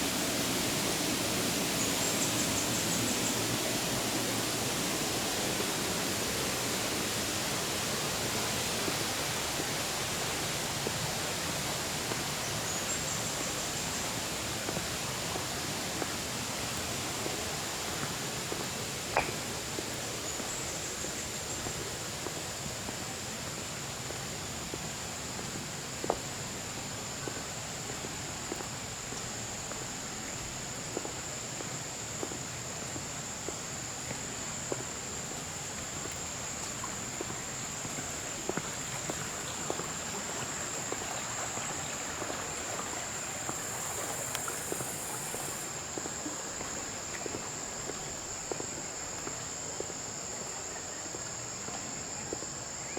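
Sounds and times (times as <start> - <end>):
insects droning: 0.0 - 52.9
faint ticks: 43.5 - 46.1.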